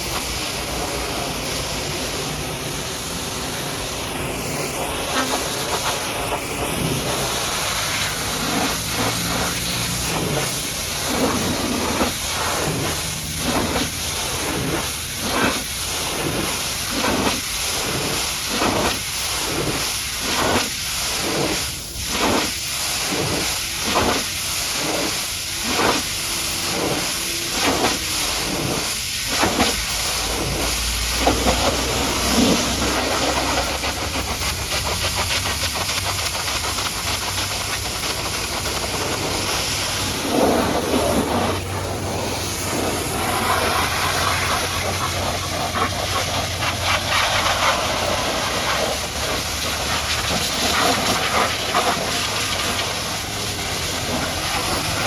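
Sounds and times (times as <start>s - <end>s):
pressure washer jet spraying: 0.0s - 55.0s.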